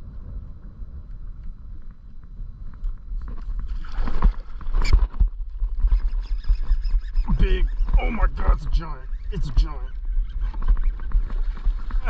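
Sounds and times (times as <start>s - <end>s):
wind buffeting microphone: 0.0s - 12.0s
water splashing: 3.6s - 5.1s.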